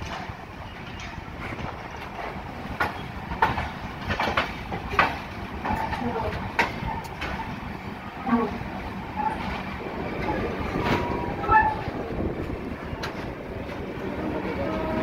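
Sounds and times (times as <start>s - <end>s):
train rumble: 0.0s - 15.0s
train wheels clicking over joints: 0.0s - 15.0s
people's voices: 9.8s - 15.0s.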